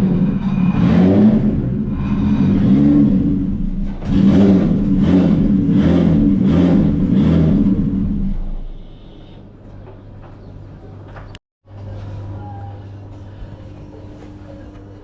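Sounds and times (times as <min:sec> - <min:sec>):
car engine revving: 0:00.0 - 0:09.1.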